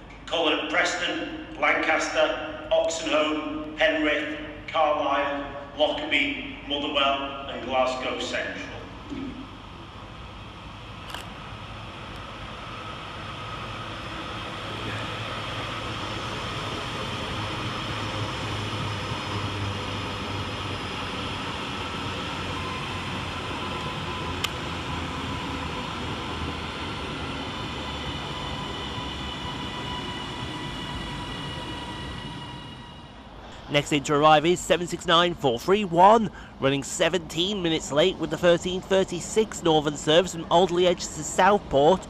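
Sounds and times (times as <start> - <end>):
electric train arriving: 0.0 - 42.0
faint high steady tones: 27.8 - 42.0.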